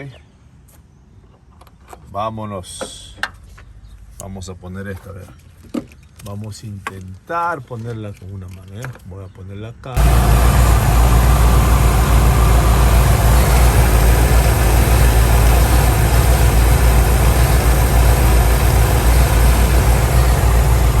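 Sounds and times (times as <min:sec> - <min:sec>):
van engine idling: 0:10.0 - 0:21.0.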